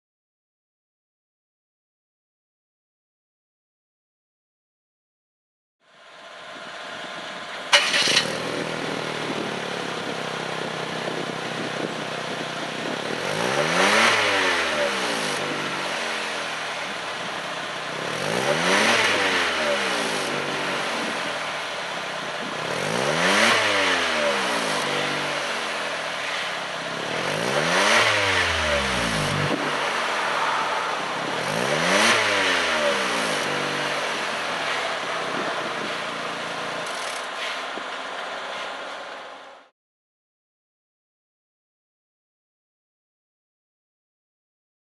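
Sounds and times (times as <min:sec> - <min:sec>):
car engine starting and revving: 0:07.0 - 0:37.2.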